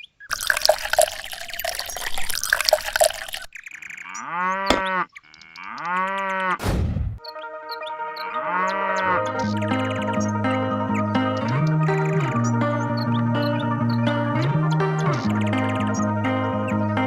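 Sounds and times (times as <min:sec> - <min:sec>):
water splashing and running: 0:00.3 - 0:03.5
cow mooing: 0:04.1 - 0:06.6, 0:08.2 - 0:09.4.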